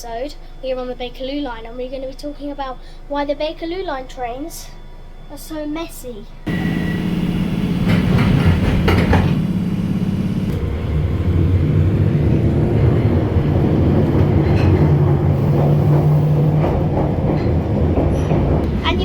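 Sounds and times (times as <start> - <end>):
underground train rumble: 6.2 - 19.0
clicks: 6.5 - 10.7
low motor hum: 6.5 - 19.0.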